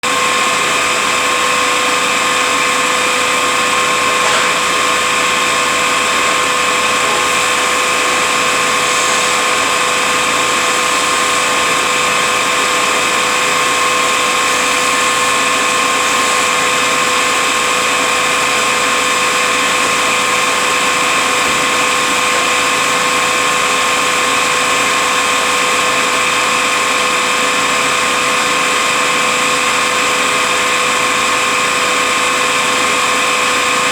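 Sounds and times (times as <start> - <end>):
truck transmission whining: 3.5 - 24.9.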